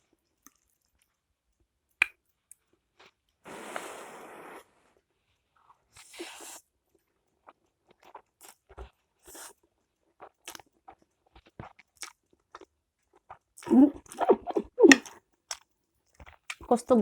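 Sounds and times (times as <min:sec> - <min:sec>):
soft chewing with mouth clicks: 0:00.0 - 0:01.2, 0:02.0 - 0:03.4, 0:05.5 - 0:16.7
noodle slurping: 0:03.5 - 0:04.6, 0:13.6 - 0:15.2.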